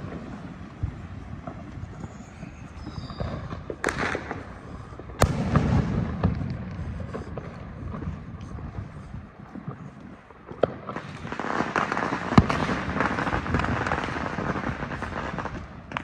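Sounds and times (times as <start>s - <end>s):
firecrackers crackling: 0.0s - 16.0s
scattered firework pops: 0.0s - 16.0s
firework bang with echo: 2.8s - 4.4s, 5.2s - 8.1s, 10.7s - 16.0s
distant firework booms: 2.8s - 4.6s, 5.2s - 8.3s, 10.6s - 16.0s.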